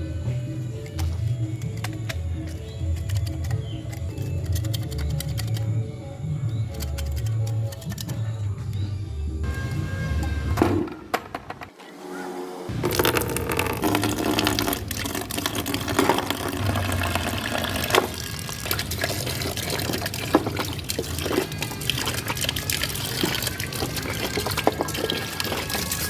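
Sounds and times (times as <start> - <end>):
liquid pouring: 12.7 - 26.0.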